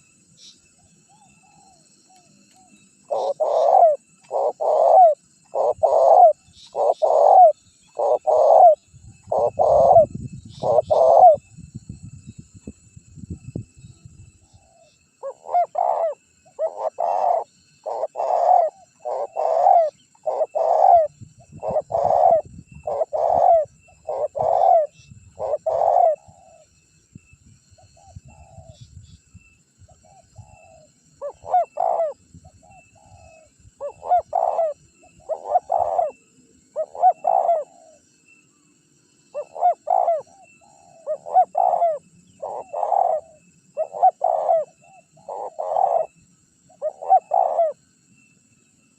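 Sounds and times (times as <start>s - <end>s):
dove cooing: 1.1s - 11.5s, 14.5s - 26.7s, 30.0s - 38.0s, 39.3s - 47.8s.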